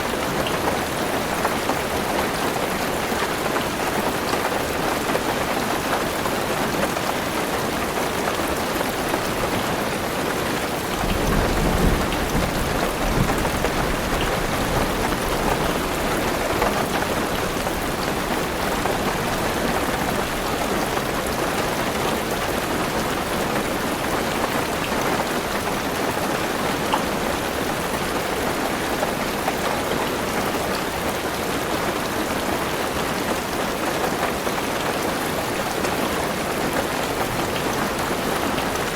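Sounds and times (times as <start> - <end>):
heavy rain on car roof: 0.0 - 38.9
thunder rumbling: 10.9 - 16.0.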